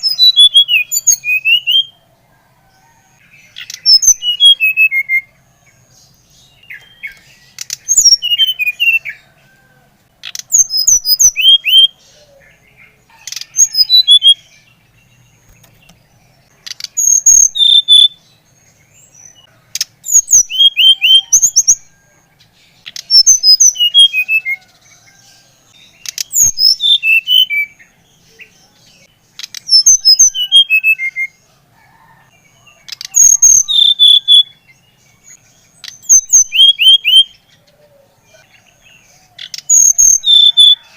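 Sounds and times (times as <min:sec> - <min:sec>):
flycatcher singing whistled notes: 0:00.0 - 0:02.0, 0:03.6 - 0:05.3, 0:10.3 - 0:12.4, 0:32.9 - 0:34.6.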